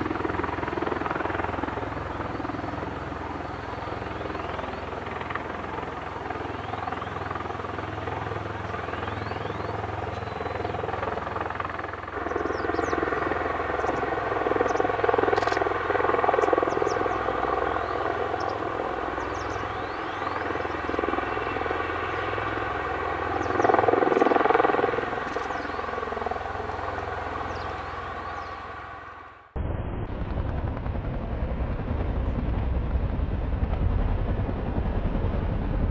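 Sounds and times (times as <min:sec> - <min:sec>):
aircraft turbine engines whining: 0:00.0 - 0:35.9.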